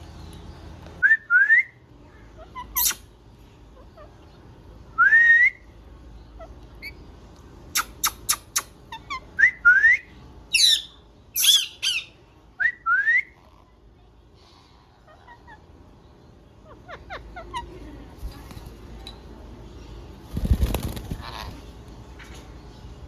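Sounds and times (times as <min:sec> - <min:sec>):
parrot squawking: 0:10.5 - 0:12.2
parrot whistling: 0:10.6 - 0:13.3.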